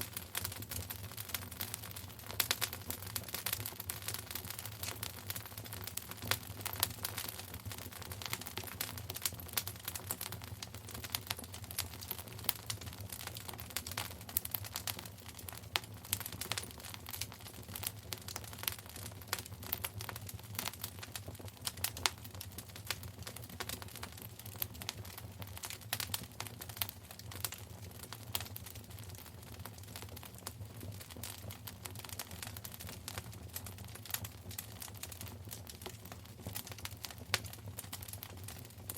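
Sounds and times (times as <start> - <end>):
fire crackling and popping: 0.0 - 38.9
low fire rumble: 0.0 - 38.9.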